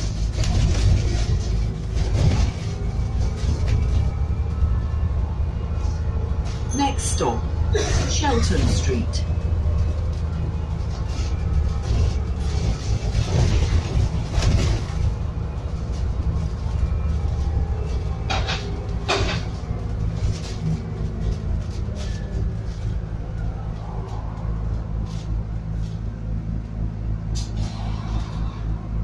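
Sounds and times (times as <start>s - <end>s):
bus body rattling: 0.0s - 29.0s
bus engine humming: 0.0s - 29.0s.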